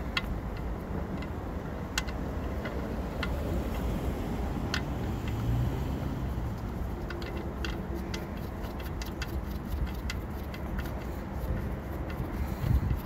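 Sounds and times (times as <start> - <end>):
metallic wrench clicks: 0.1 - 3.8, 6.5 - 13.0.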